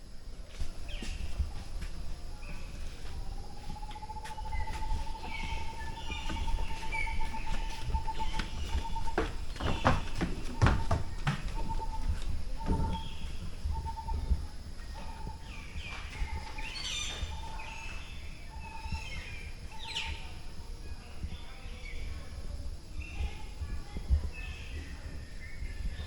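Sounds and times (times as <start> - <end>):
birds chirping and trilling: 2.3 - 20.4.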